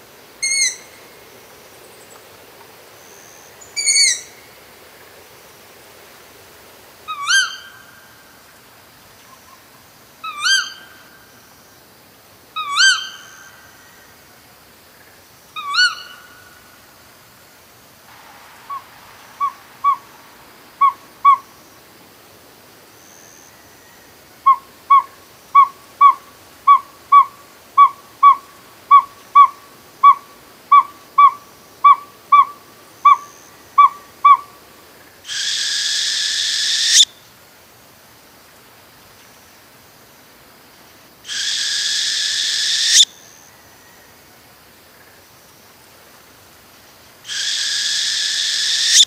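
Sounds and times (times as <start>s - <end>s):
owl hissing screech: 0.4s - 0.9s, 3.8s - 4.3s, 18.6s - 20.1s, 35.3s - 37.1s, 41.3s - 43.1s, 47.3s - 49.0s
owl hooting: 0.4s - 1.0s, 3.7s - 4.4s, 7.1s - 8.0s, 10.2s - 11.0s, 12.6s - 13.6s, 15.6s - 16.5s, 18.6s - 20.1s, 20.8s - 21.5s, 24.4s - 34.5s, 35.3s - 37.1s, 41.3s - 43.1s, 47.3s - 49.0s.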